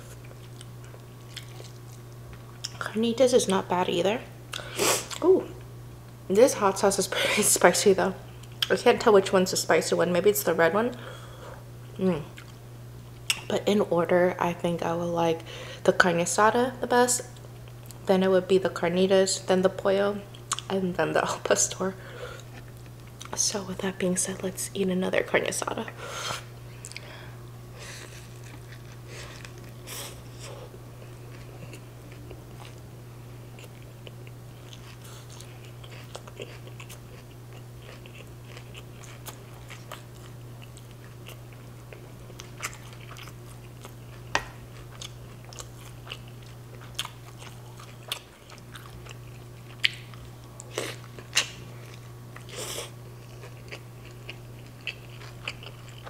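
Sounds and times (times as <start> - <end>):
chewing and biting food: 0.1 - 2.8, 28.0 - 30.3, 33.5 - 56.0.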